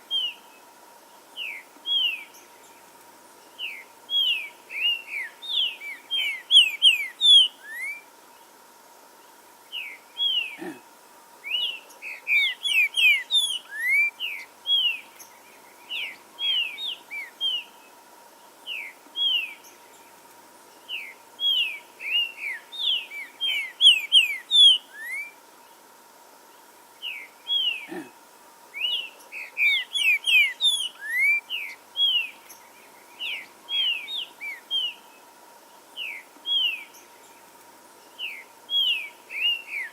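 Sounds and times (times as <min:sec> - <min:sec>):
faint steady tone: 0:00.0 - 0:39.9
bird whistling song: 0:03.6 - 0:08.0, 0:11.4 - 0:15.1, 0:20.9 - 0:25.4, 0:28.8 - 0:32.4, 0:33.2 - 0:35.0, 0:36.0 - 0:37.0, 0:38.2 - 0:39.9.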